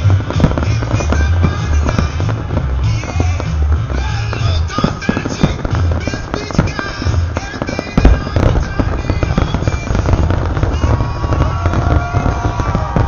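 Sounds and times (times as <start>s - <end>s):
firework booms and crackle: 0.0s - 13.0s
low rumbling: 0.0s - 13.0s
music: 0.0s - 13.0s.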